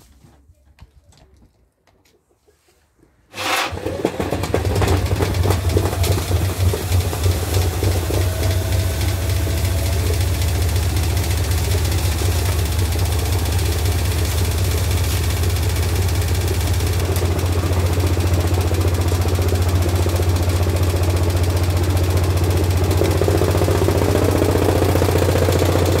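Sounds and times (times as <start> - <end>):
rough rattling noise: 3.3 - 18.7
washing machine motor humming: 3.4 - 26.0.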